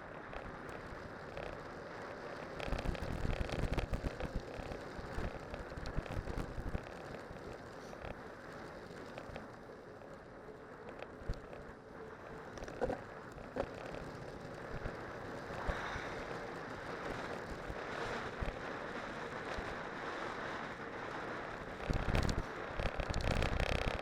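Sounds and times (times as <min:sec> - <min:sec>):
bike tyres rushing downhill: 0:00.0 - 0:24.0
small clicks and knocks: 0:00.3 - 0:10.2, 0:10.8 - 0:11.7, 0:12.5 - 0:15.0
wind buffeting microphone: 0:10.9 - 0:24.0.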